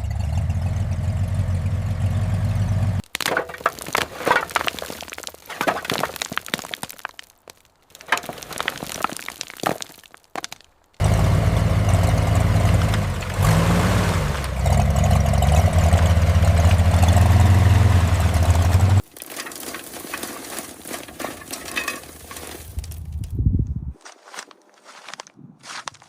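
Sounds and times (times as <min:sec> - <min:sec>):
engine running: 0:00.0 - 0:03.0, 0:11.0 - 0:19.0.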